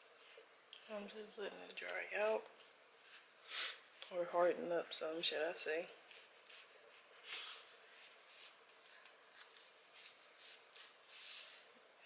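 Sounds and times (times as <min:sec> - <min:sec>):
faint soft rustles: 0:01.7 - 0:04.5, 0:05.3 - 0:12.0.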